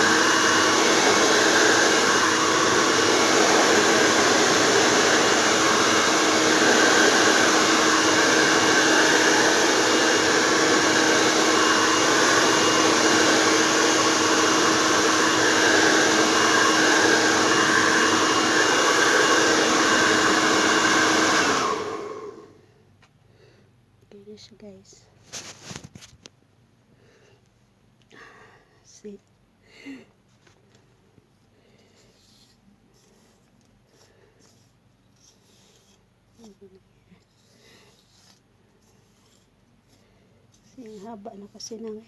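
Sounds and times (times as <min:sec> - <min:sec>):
hair dryer running: 0:00.0 - 0:22.6.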